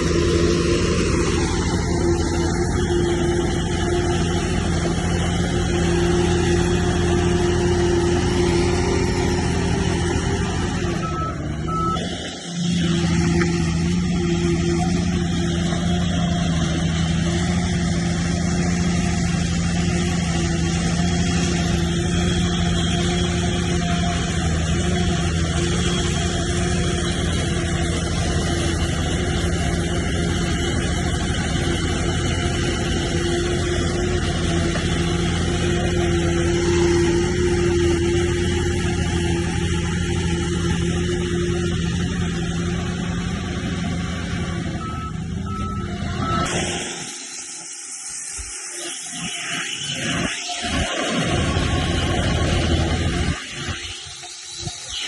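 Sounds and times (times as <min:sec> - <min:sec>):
bulldozer diesel engine: 0:00.0 - 0:55.0
short high beeps: 0:10.9 - 0:12.1, 0:44.8 - 0:46.5.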